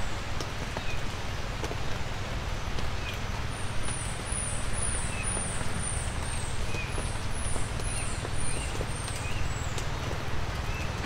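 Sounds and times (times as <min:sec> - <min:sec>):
dripping water ticks: 0:02.7 - 0:11.0.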